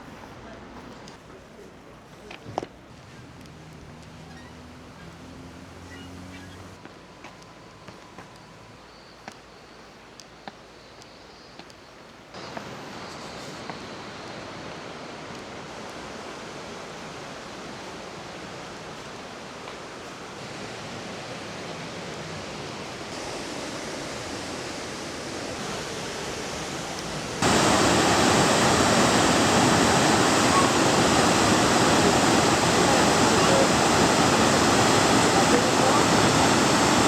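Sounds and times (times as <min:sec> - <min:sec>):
waterfall roaring: 0:12.4 - 0:37.0.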